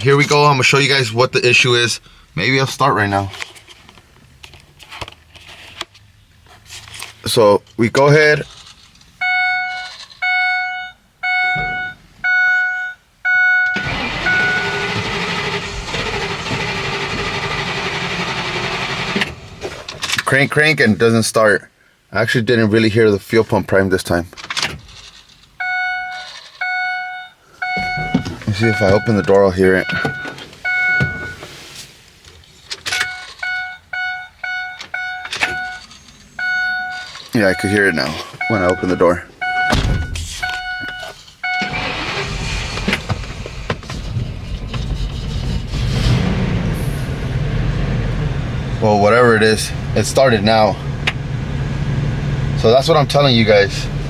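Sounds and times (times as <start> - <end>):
dashboard warning chime beeping: 9.2 - 15.1, 25.6 - 31.4, 32.9 - 42.3
clunks: 11.2 - 12.4, 13.6 - 20.3, 27.6 - 31.5, 32.6 - 46.2
starter cranking engine: 13.7 - 19.7, 41.6 - 46.1.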